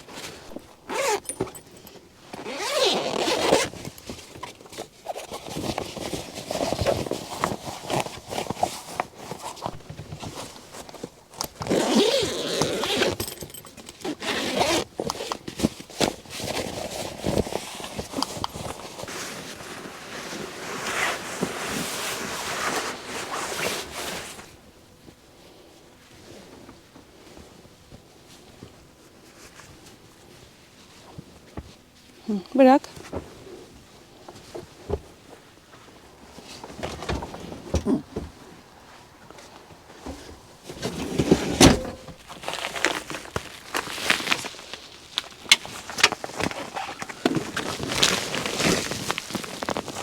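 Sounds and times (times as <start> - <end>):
fabric rustling: 0.0 - 24.6, 40.0 - 50.0
zippers opening and closing: 0.5 - 3.8, 11.4 - 15.3.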